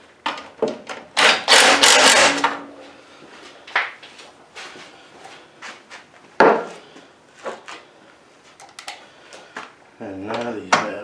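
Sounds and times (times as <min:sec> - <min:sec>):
tools knocking and clicking: 0:01.2 - 0:02.6.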